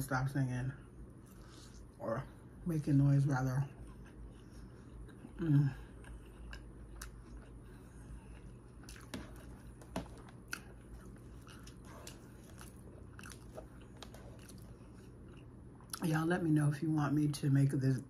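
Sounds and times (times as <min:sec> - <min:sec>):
chewing salad: 0:03.3 - 0:16.1.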